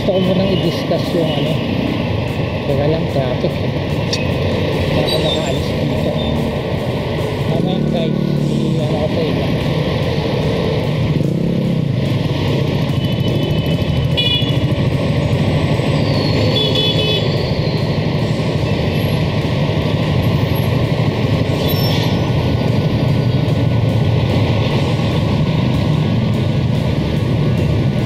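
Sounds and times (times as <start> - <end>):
traffic rumbling: 0.0 - 28.0
motorcycle engine at low speed: 9.9 - 28.0.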